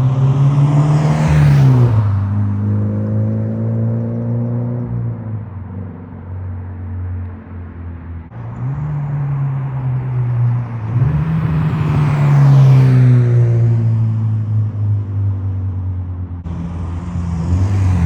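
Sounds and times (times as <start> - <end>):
car engine passing by: 0.0 - 5.0, 8.4 - 14.1, 16.4 - 18.0.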